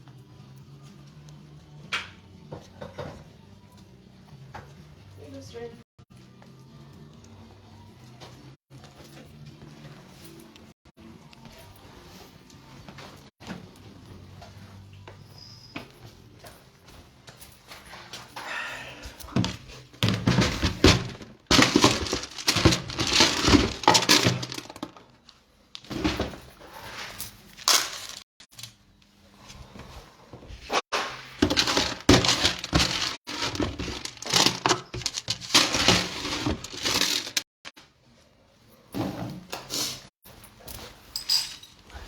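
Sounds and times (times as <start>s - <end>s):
food bowls clattering and rattling: 19.4s - 25.1s, 31.0s - 37.4s.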